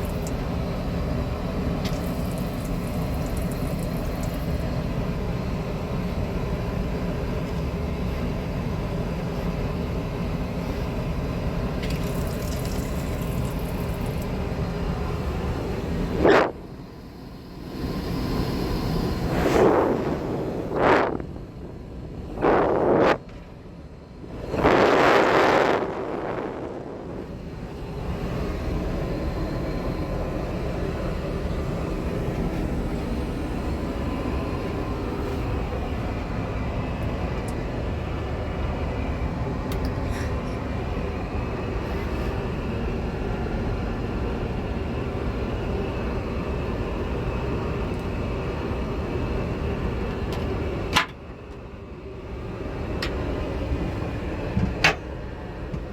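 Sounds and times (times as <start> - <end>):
airliner cabin noise: 0.0 - 55.9
loud whooshes: 18.8 - 23.2.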